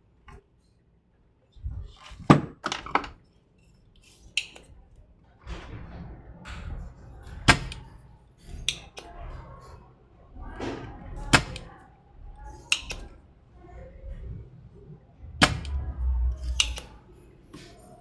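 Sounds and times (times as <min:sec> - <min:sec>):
low rumbling handling noise: 0:01.6 - 0:03.2, 0:04.7 - 0:18.0
tools clicking and knocking: 0:07.3 - 0:09.2, 0:10.5 - 0:11.8, 0:12.5 - 0:13.2, 0:15.4 - 0:17.8.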